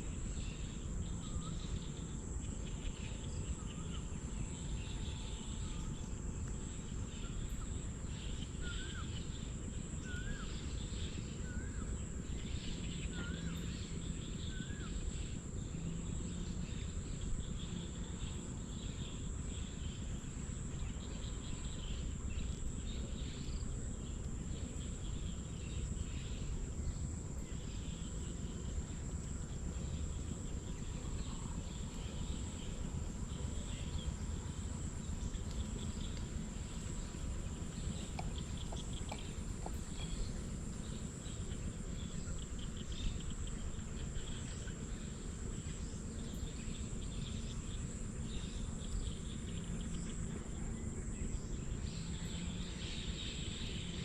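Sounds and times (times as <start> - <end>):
insect chirps: 0.0 - 54.0
insects trilling: 0.0 - 54.0
low outdoor rumble: 0.0 - 54.0.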